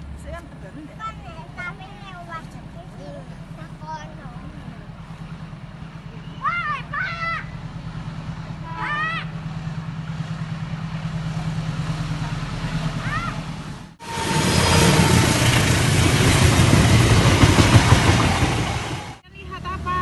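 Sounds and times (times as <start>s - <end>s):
low engine hum: 0.0s - 20.0s
train passing rumble: 0.0s - 20.0s
child calling: 6.2s - 7.6s, 8.6s - 9.4s, 13.0s - 13.5s.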